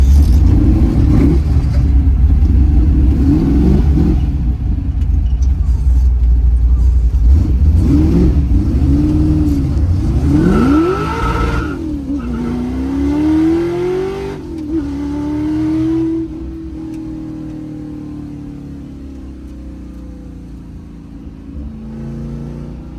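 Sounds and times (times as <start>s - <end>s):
heavy exhaust rumble: 0.0s - 22.9s
vee eight engine revving: 0.0s - 22.9s.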